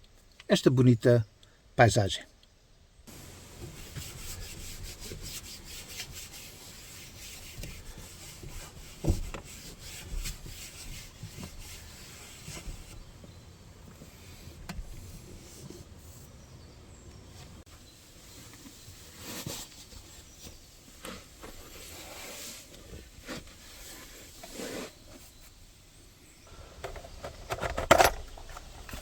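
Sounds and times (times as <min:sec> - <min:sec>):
rustling and crackling of dry material: 0:17.2 - 0:26.6.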